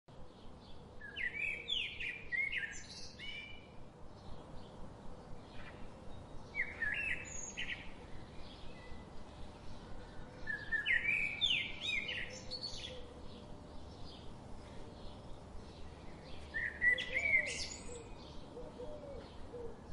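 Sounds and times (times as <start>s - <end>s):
quiet bird chirps: 0.1s - 19.9s
bird singing rising phrase: 15.8s - 18.6s.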